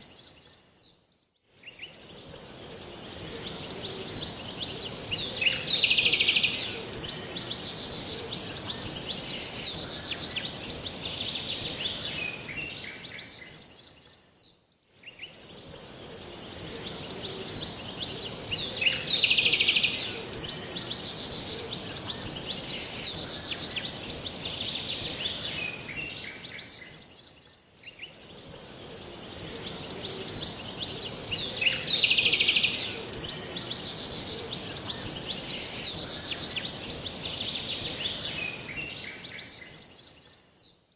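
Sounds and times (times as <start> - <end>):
steady high hiss: 28.1 - 40.0.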